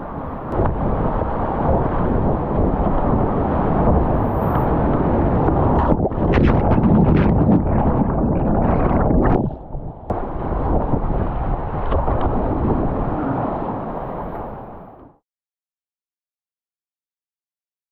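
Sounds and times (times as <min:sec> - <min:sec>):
river water rushing: 0:10.1 - 0:14.9
whitewater rushing and splashing: 0:10.1 - 0:14.9.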